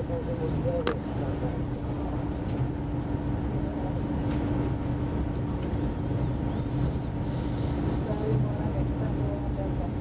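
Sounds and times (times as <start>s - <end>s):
constant hum: 0.0s - 10.0s
train wheels rumbling on rail: 0.0s - 10.0s.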